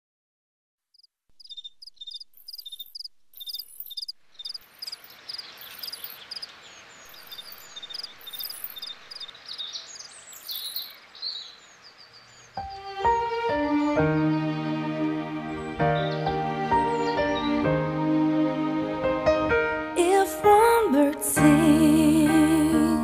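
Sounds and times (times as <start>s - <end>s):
small birds chirping: 0.9s - 18.1s
woodland hiss: 4.4s - 17.7s.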